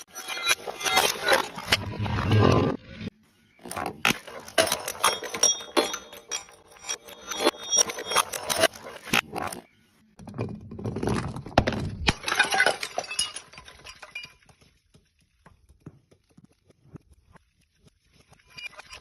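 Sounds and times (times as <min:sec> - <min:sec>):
tinkling glass shards: 0:00.0 - 0:01.8, 0:04.1 - 0:09.2, 0:12.2 - 0:14.5
glass bottles shattering: 0:00.1 - 0:02.0, 0:03.7 - 0:09.6, 0:11.2 - 0:14.6.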